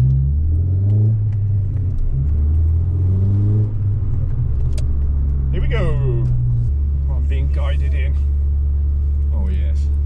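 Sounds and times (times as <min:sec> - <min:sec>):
car engine low drone: 0:00.0 - 0:10.0.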